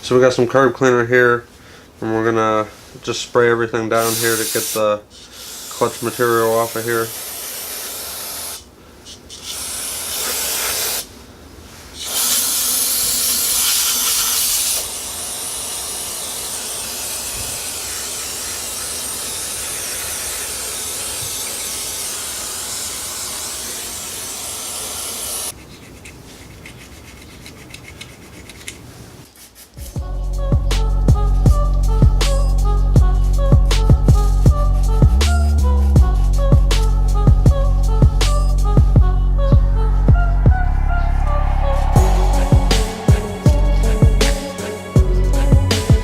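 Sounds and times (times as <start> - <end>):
aerosol spray hissing: 4.0 - 11.1, 12.0 - 25.6, 42.0 - 46.0.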